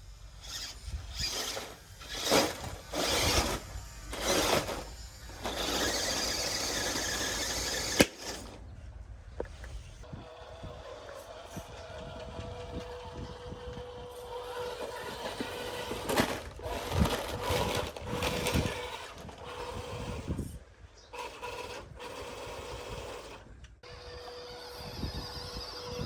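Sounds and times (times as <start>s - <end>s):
electric motor whining: 0.4s - 8.6s, 10.0s - 26.0s
tyres crunching on loose soil: 11.3s - 20.4s.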